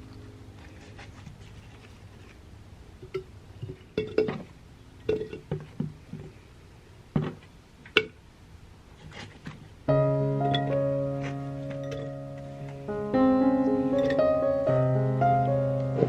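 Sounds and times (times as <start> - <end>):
glass and dishes clinking: 3.0 - 4.4, 5.1 - 5.7.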